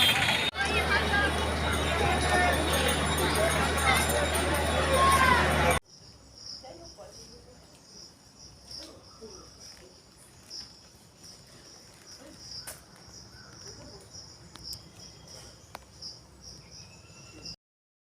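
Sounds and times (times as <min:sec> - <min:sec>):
crickets chirping: 0:05.8 - 0:17.6.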